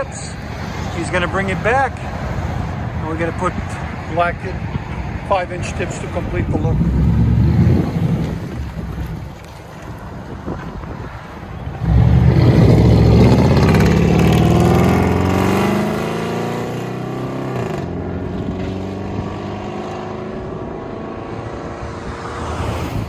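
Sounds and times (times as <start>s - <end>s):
car engine revving and idling: 6.5s - 9.0s, 11.8s - 21.5s.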